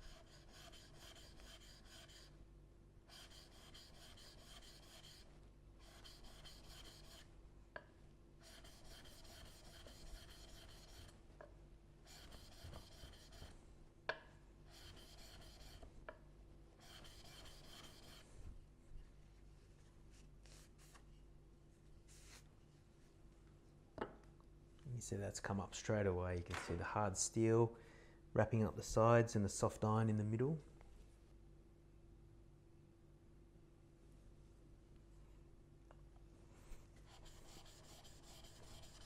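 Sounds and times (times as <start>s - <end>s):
chisel rubbing on sharpening stone: 0.0s - 2.3s, 3.1s - 7.2s, 8.4s - 11.1s, 12.1s - 13.5s, 14.7s - 15.8s, 16.8s - 18.2s, 37.1s - 39.0s.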